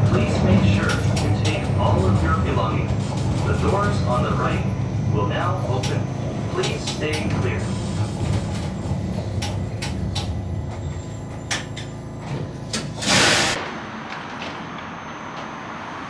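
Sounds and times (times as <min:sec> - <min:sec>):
low running hum: 0:00.0 - 0:13.1
loud hiss of air: 0:13.0 - 0:13.6.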